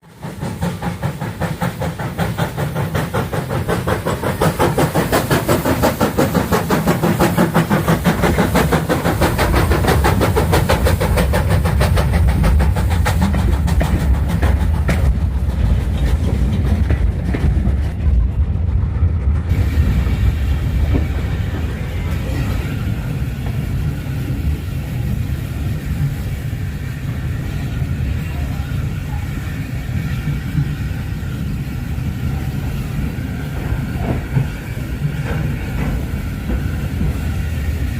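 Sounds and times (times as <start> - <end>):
steam locomotive chuffing: 0.0 - 37.9
heavy low rumble: 9.2 - 25.2.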